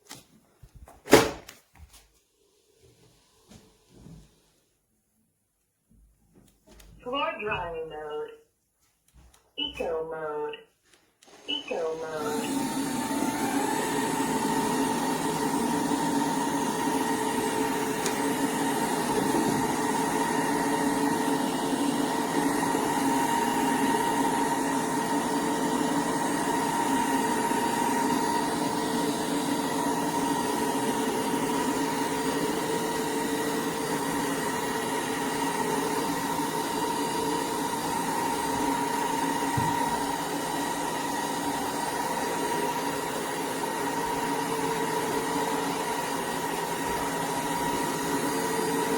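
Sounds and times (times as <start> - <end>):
cordless vacuum whirring: 11.2 - 48.9.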